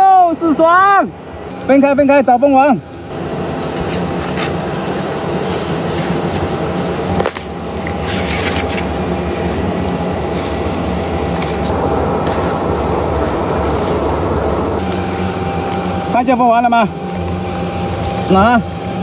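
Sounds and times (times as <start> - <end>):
steady low hum: 0.0 - 19.0
paper comb crackling: 3.0 - 16.2.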